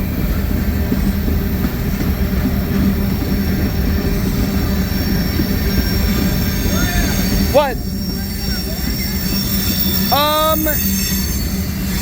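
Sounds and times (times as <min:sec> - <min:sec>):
freight train rail rumble: 0:00.0 - 0:12.0
faint brake squealing: 0:04.3 - 0:12.0.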